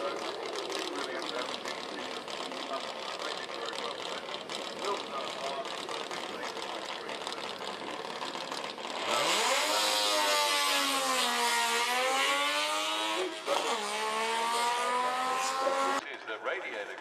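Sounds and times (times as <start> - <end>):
car engine revving hard: 8.8 - 16.0.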